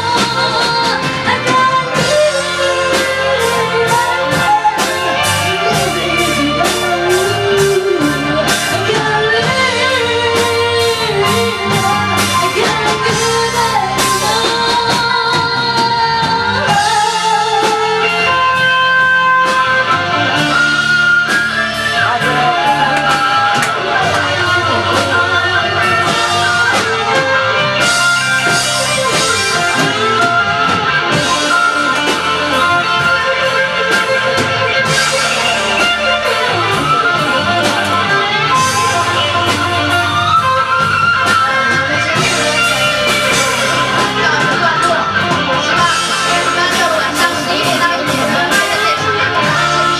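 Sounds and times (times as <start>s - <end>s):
electric guitar bending notes: 0.0s - 49.9s
rock band playing: 0.0s - 49.9s.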